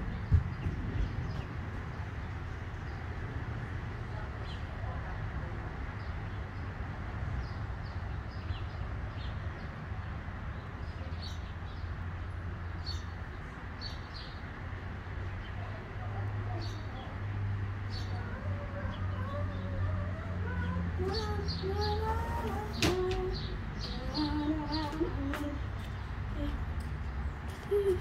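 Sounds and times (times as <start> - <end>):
small birds chirping: 5.9 - 14.6, 15.3 - 28.0.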